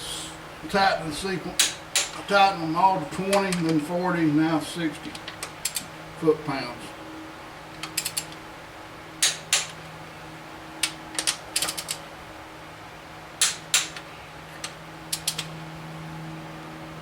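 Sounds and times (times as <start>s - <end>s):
torque wrench ratcheting and clicking: 15.1s - 15.5s.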